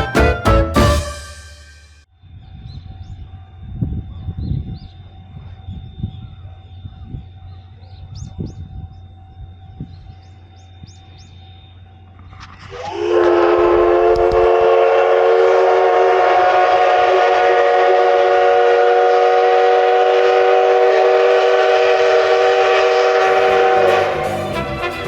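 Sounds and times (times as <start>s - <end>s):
steam locomotive whistle: 0.0s - 2.0s, 12.7s - 25.0s.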